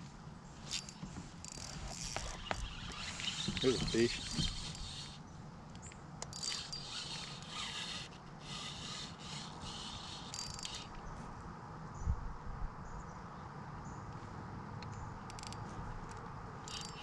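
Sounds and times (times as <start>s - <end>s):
fishing reel whirring: 1.4s - 5.2s, 6.3s - 11.0s, 16.7s - 17.0s.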